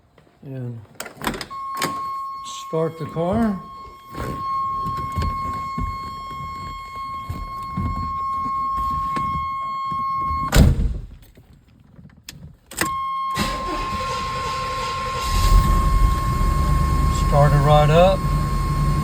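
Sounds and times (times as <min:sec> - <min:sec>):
car warning tone: 0:01.4 - 0:10.6, 0:12.8 - 0:19.0
loud thump: 0:10.5 - 0:11.2.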